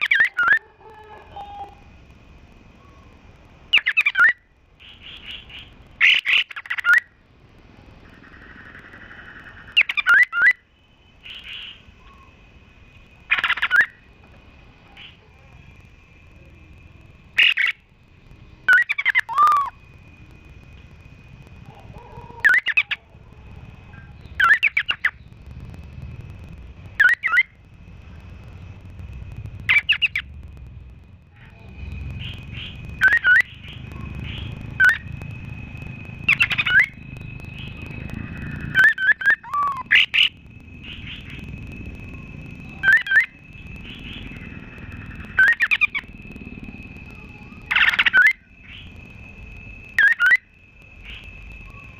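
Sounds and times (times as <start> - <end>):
sharp short bird calls: 3.8 - 7.0.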